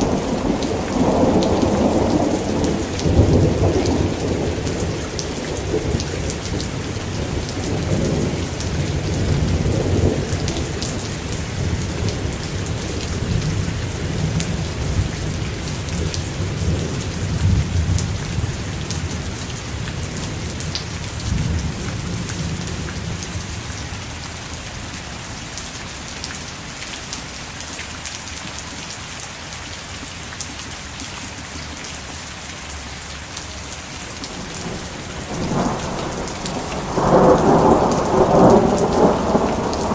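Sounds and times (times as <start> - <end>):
rolling thunder: 0.0 - 23.5, 34.3 - 39.9
rain hiss: 0.0 - 39.9.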